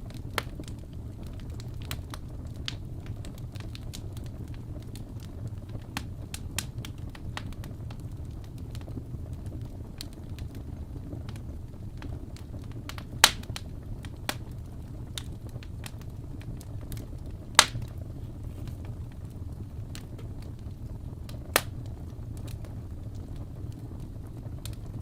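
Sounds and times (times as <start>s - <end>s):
fire crackling: 0.0s - 25.0s
low rumble of flames: 0.0s - 25.0s
loud sharp pops from logs: 13.2s - 13.5s, 17.6s - 17.9s.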